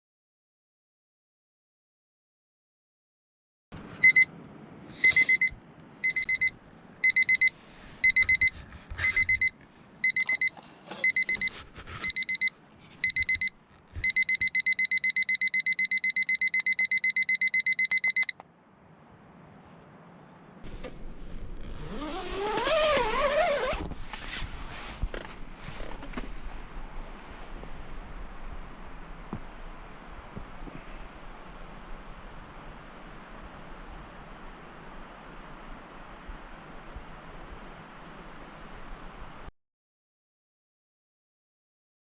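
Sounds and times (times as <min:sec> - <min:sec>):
electronic alarm beeping: 0:04.0 - 0:04.3, 0:05.0 - 0:08.5, 0:09.1 - 0:18.4.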